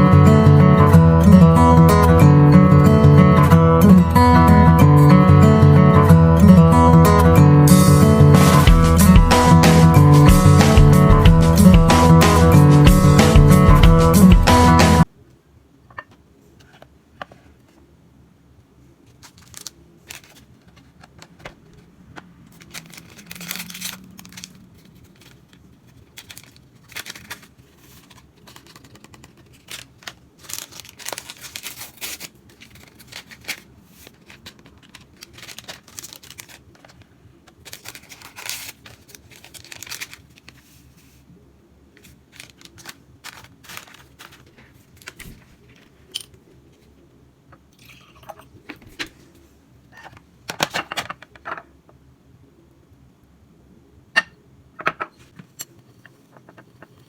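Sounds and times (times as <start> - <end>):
packaging rustling: 19.1 - 41.2, 42.0 - 46.9.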